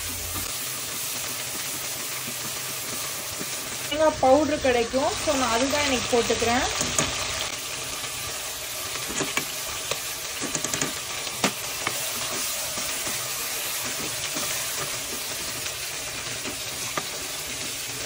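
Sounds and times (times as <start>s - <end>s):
masala sizzling in oil: 0.0s - 18.0s.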